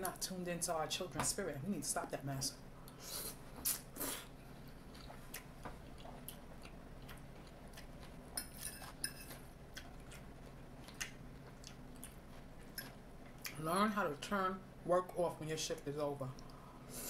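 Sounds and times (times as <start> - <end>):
chewing noodles: 4.8 - 13.6.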